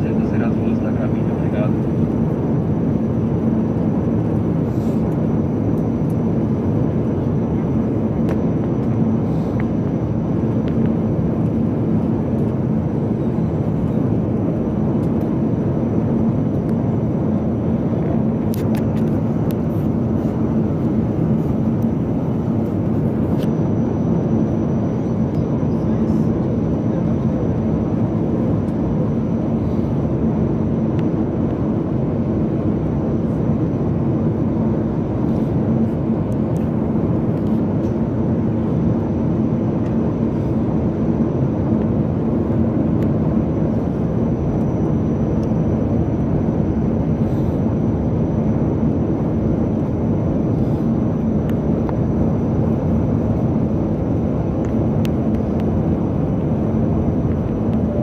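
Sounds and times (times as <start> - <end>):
airflow over fuselage: 0.0 - 58.0
jet engine rumble: 0.0 - 58.0
low cabin hum: 0.0 - 58.0.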